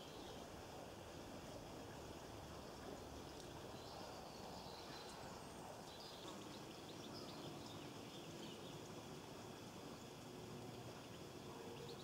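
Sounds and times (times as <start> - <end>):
small birds twittering: 3.7 - 8.9.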